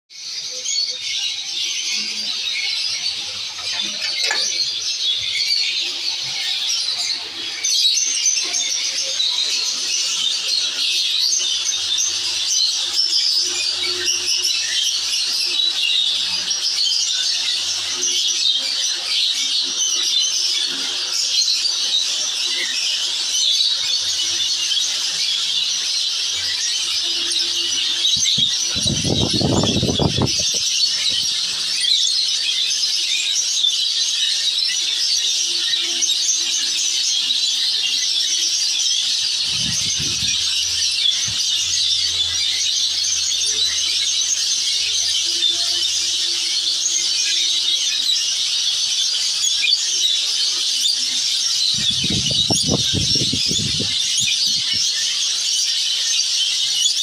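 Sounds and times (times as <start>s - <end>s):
small birds chattering and squeaking: 0.1s - 57.0s.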